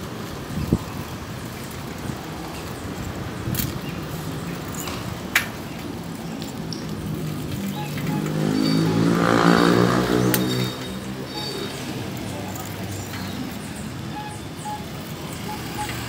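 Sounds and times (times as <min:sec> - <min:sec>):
street traffic noise: 0:00.0 - 0:16.0
vehicle engine passing close: 0:06.6 - 0:13.0.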